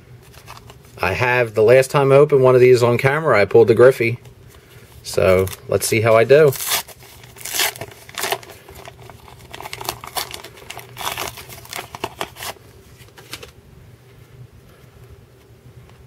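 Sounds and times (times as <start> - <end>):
wrapper tearing and crinkling: 0.2 - 1.0, 5.1 - 13.5
cards rustling: 0.2 - 1.1, 4.1 - 13.6.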